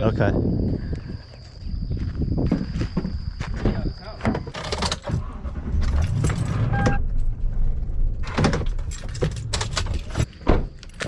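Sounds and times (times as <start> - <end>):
knocks and clatters: 3.7 - 11.0
short electronic beep: 6.6 - 7.1.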